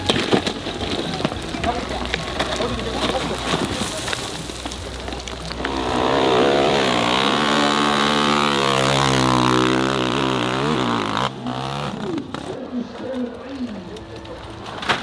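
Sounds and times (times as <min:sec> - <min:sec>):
dirt bike engine revving high: 0:04.4 - 0:12.4.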